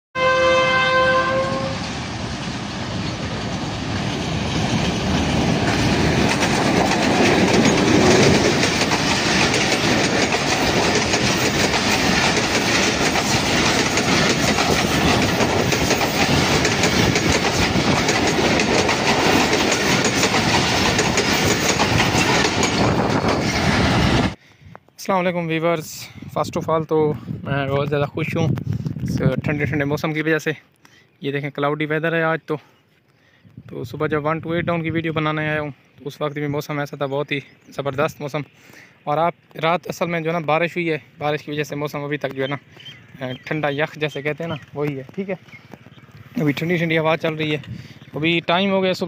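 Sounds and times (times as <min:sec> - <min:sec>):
locomotive horn: 0:00.2 - 0:01.9
locomotive engine noise: 0:00.2 - 0:24.4
train coaches clickety-clack: 0:00.9 - 0:24.4, 0:41.6 - 0:49.0.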